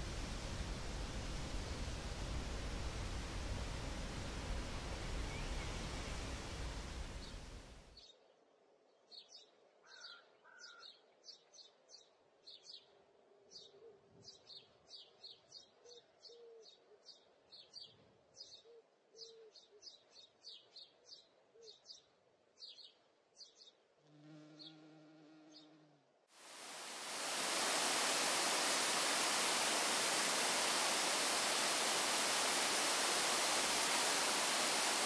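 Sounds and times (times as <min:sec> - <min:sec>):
fly buzzing: 0:24.1 - 0:35.0.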